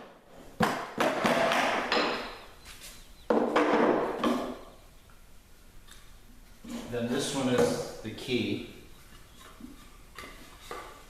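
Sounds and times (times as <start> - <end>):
hammer striking wooden wedges: 0.0 - 2.4.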